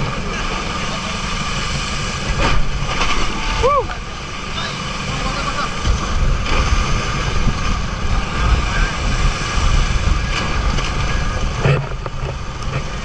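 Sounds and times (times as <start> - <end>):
boat engine running: 0.0 - 13.0
wind rumbling on microphone: 0.0 - 13.0.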